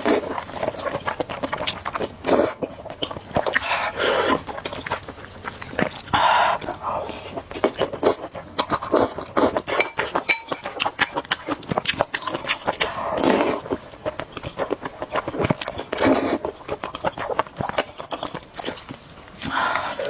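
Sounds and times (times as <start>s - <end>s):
chewing with wet clicks: 0.0s - 20.0s
loud noodle slurps: 1.6s - 2.6s, 12.8s - 13.8s, 16.0s - 16.5s.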